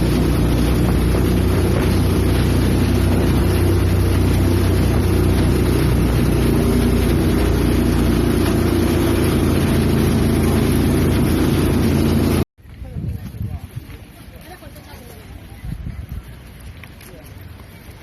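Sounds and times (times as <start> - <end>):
motorboat engine running: 0.0 - 12.5
wind noise: 0.0 - 17.6.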